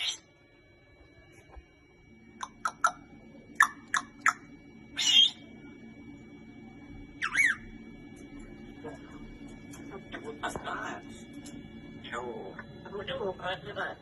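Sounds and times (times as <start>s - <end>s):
parrot squawking: 0.0s - 0.2s, 2.4s - 3.0s, 3.6s - 5.4s, 7.2s - 7.7s.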